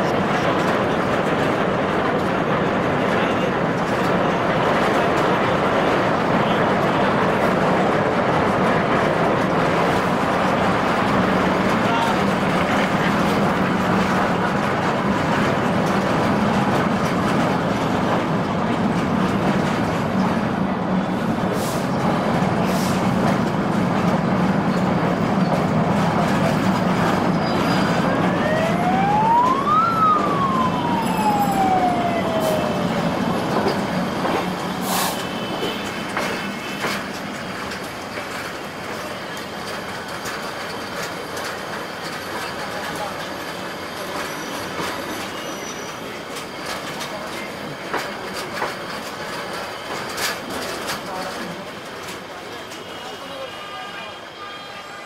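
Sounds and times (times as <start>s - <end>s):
train wheels rumbling on track: 0.0s - 55.0s
siren wail: 27.2s - 34.8s.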